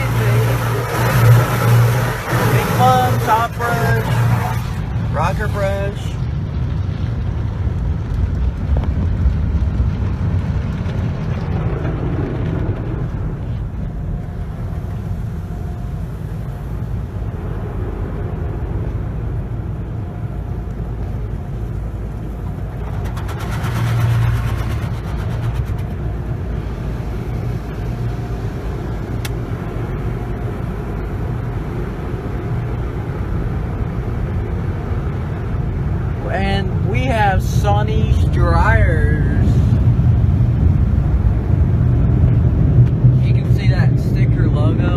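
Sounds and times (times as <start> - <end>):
cloth brushes scrubbing car: 0.0 - 5.7
rapid slapping and spray: 0.0 - 5.8, 22.0 - 29.5
wash motors rumbling: 0.0 - 44.9.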